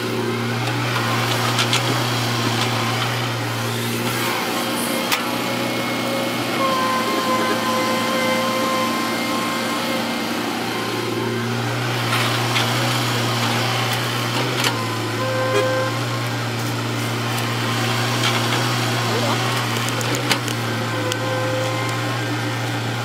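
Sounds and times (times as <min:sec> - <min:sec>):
diesel engine running: 0:00.0 - 0:23.0
machine whine: 0:03.6 - 0:13.3.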